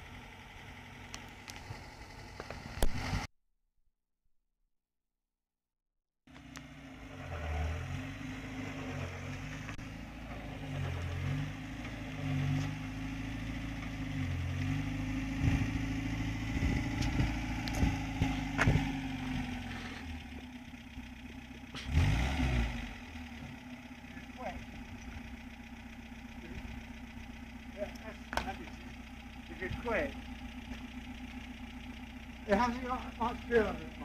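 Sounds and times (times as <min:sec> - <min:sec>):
car engine running: 0:00.0 - 0:03.3, 0:06.3 - 0:34.0
sharp clicks and knocks: 0:28.0 - 0:28.8.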